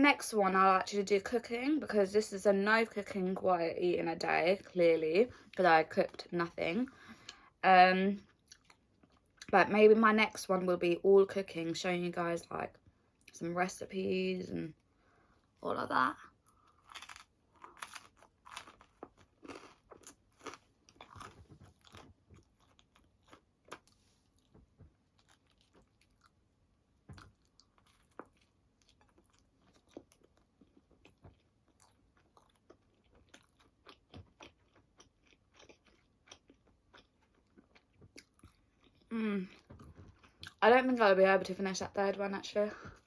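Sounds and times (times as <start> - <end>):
person chewing pizza: 8.3 - 9.5, 16.4 - 40.6.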